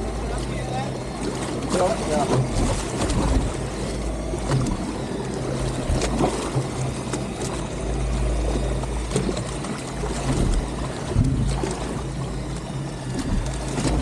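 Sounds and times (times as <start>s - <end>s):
boat engine humming: 0.0s - 14.0s
water noise: 0.0s - 14.0s
wind: 0.0s - 14.0s.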